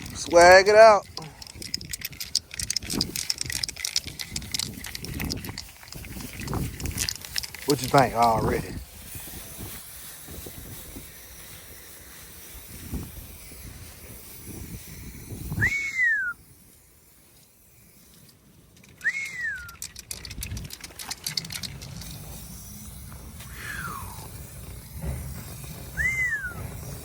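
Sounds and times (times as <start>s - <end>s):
rising and falling whistles: 15.3s - 16.4s, 19.0s - 19.9s, 23.5s - 24.3s, 25.9s - 26.9s.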